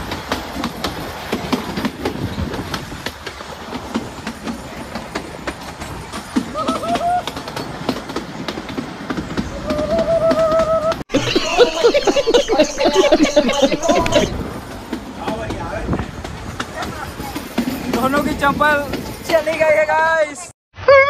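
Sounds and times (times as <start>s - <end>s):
wheels clattering over rail joints: 0.0s - 20.0s
train rumble: 0.0s - 20.4s
drawn-out tones: 9.7s - 14.4s.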